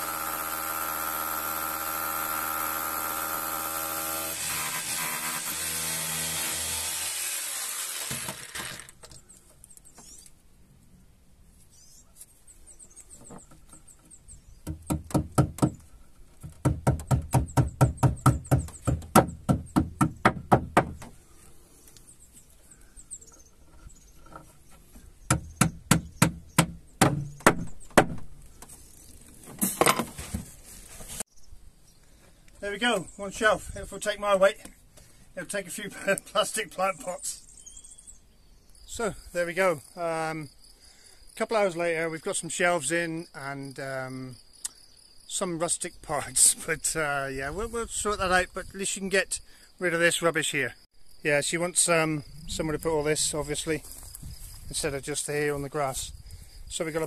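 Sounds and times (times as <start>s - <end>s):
electric drill boring wood: 0.0s - 9.0s.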